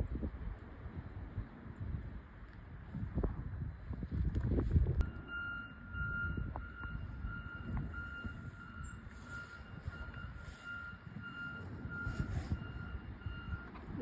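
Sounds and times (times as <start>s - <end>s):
reversing beeper: 5.0s - 14.0s.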